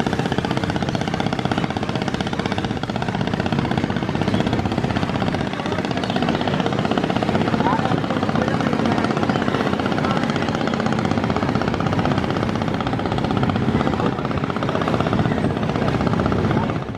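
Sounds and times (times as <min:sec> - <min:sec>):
boat diesel engine pulsing: 0:00.0 - 0:16.9.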